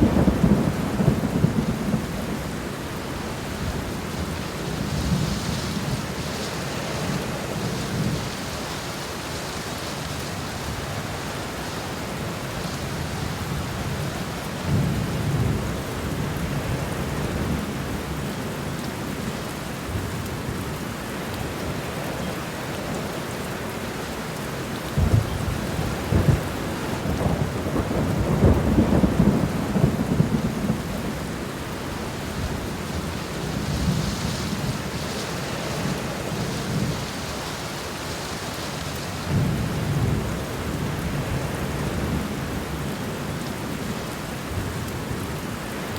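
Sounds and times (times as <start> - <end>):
low rumbling thunder: 0.0 - 2.8, 12.9 - 18.3, 24.9 - 37.5, 39.2 - 43.2
steady rain falling: 0.0 - 45.9.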